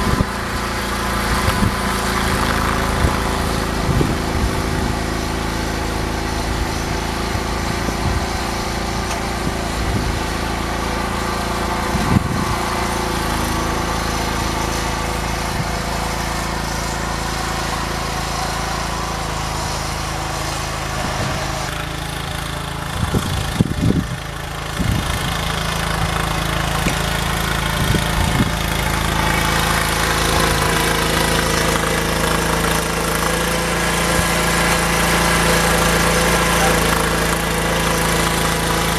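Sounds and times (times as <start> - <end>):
garden tractor engine running: 0.0 - 38.9.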